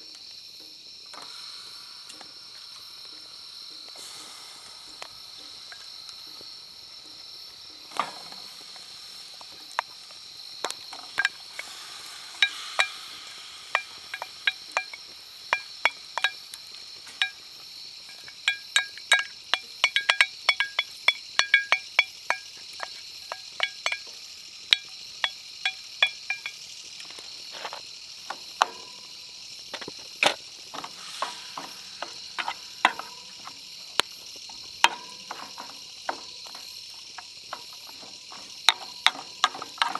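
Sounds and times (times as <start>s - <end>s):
insects chirring: 0.0s - 39.9s
metal utensil scraping cookware: 10.9s - 16.4s, 18.1s - 24.1s, 24.7s - 26.6s, 27.5s - 29.1s, 29.8s - 39.9s.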